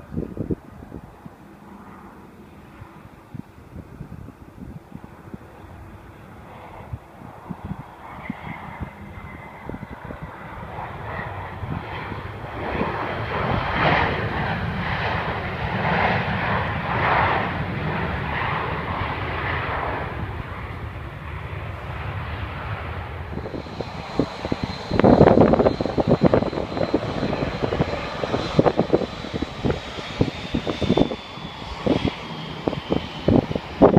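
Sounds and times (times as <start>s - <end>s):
jet engines roaring past: 0.0s - 33.9s.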